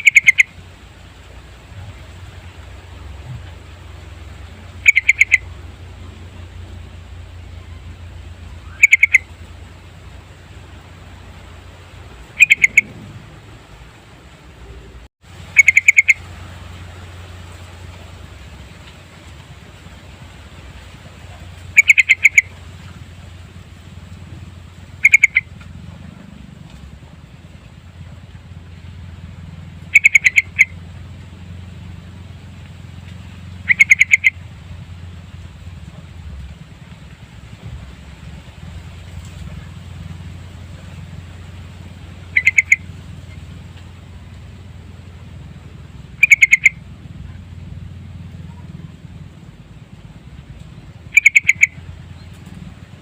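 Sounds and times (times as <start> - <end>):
bird calling loud notes: 0.0 - 0.7, 1.9 - 19.1, 20.8 - 26.2, 29.7 - 32.2, 32.8 - 35.2, 39.3 - 49.0, 50.7 - 52.6
steady low hum: 0.0 - 53.0
bird calling short notes: 4.8 - 5.5, 8.6 - 9.3, 12.3 - 13.2, 14.6 - 16.2.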